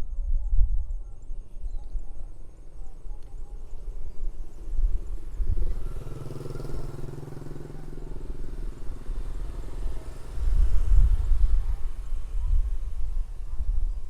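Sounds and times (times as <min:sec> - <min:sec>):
motorcycle engine passing by: 0:03.6 - 0:14.0.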